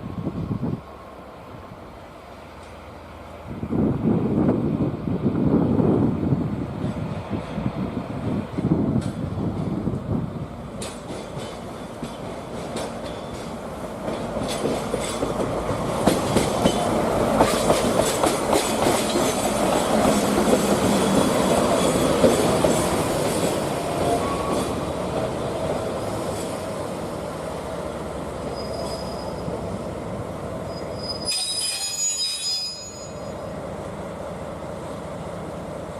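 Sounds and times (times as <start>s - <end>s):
locomotive rail noise: 0.0s - 35.9s
wheels clacking over rail joints: 10.7s - 26.7s
faint wheel squeal: 28.5s - 29.5s, 30.6s - 33.5s.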